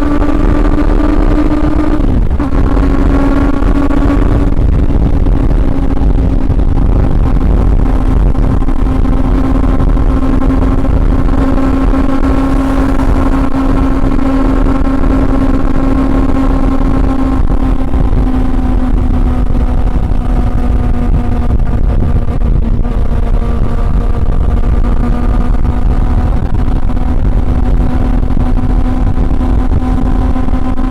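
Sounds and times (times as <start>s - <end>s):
motorcycle engine cruising: 0.0s - 30.9s
wind rumble on microphone: 0.0s - 30.9s.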